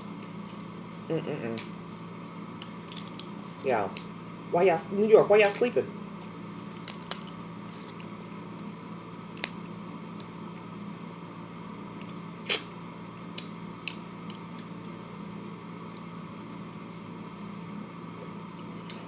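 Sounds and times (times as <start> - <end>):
low room hum: 0.0 - 19.0
small clicks and crackles: 6.6 - 8.7.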